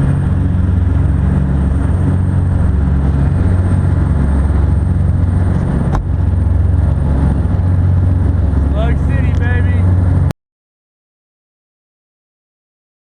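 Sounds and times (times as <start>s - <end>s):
boat engine humming: 0.0s - 10.3s
rush of wind and water: 0.0s - 10.3s.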